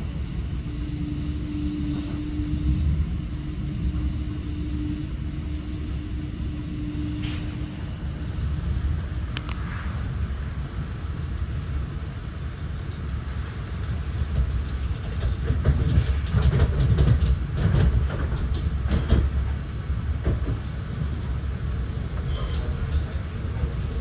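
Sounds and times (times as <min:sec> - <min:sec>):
train wheels rumbling on rails: 0:00.0 - 0:24.0
wheels clacking over track joints: 0:14.4 - 0:20.8.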